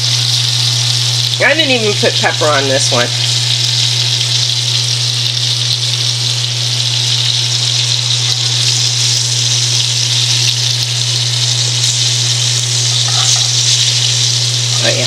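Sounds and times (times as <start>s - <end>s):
fish sizzling in oil: 0.0s - 15.0s
steady low hum: 7.4s - 15.0s.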